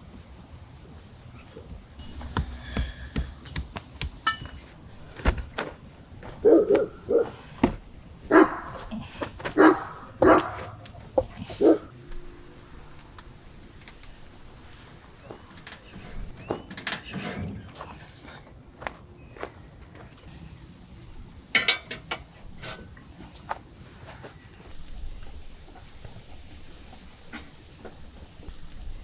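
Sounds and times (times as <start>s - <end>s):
sharp knocks and clicks: 2.0s - 5.7s
dog barking: 6.4s - 7.5s, 8.3s - 8.9s, 9.6s - 10.8s, 11.5s - 11.9s.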